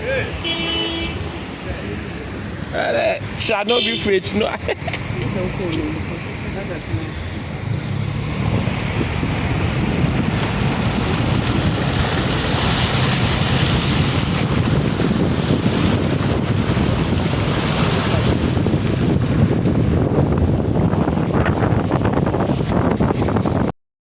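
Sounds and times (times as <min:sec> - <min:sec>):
floodwater rushing: 0:00.0 - 0:23.7
deep rumble: 0:04.7 - 0:23.7.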